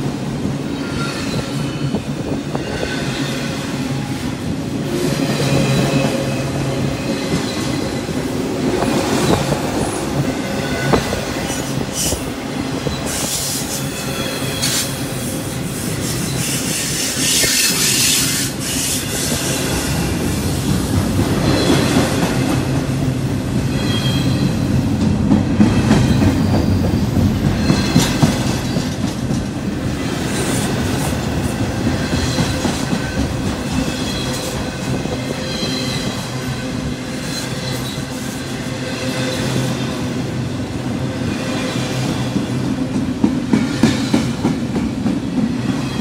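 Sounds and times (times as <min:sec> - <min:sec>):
train cars clanking: 0:00.0 - 0:46.0
train wheels rumbling on rail: 0:00.0 - 0:46.0
high wheel squeal: 0:12.8 - 0:20.0, 0:33.8 - 0:38.5.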